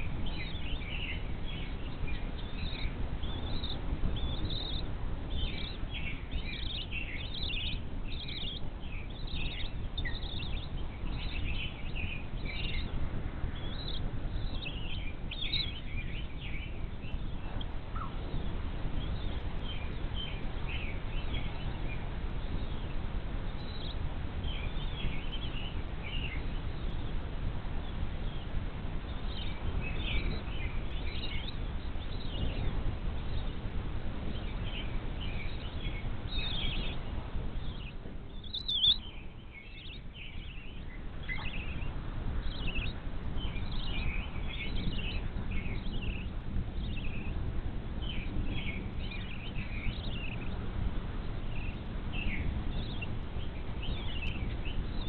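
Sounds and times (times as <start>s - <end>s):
low background rumble: 0.0s - 55.0s
high bird chirps: 37.6s - 47.4s.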